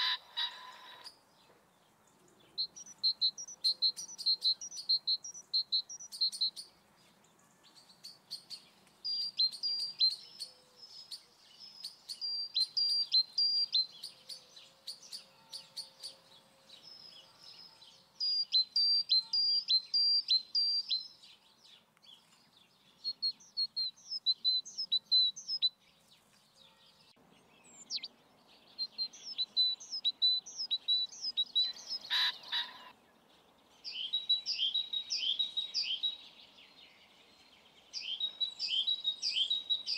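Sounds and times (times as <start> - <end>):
louder fuller bird call: 0.0 - 1.2
songbirds chirping: 0.0 - 39.9.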